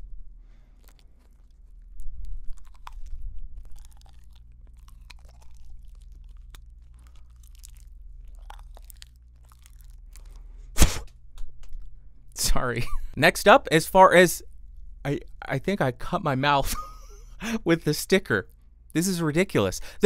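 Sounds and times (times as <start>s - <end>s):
person chewing paper: 0.3s - 10.8s
sharp loud click: 10.8s - 11.1s.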